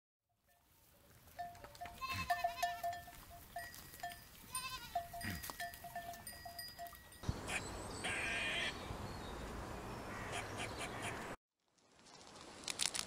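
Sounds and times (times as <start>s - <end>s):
goat bleating: 1.6s - 3.0s, 4.4s - 5.6s, 7.5s - 8.7s.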